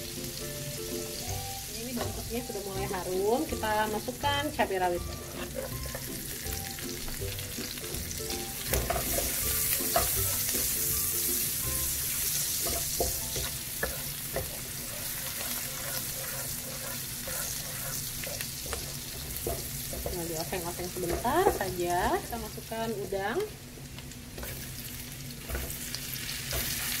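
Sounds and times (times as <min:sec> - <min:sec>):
garlic sizzling in a pan: 0:00.0 - 0:27.0
wooden spatula scraping a pan: 0:12.2 - 0:21.7.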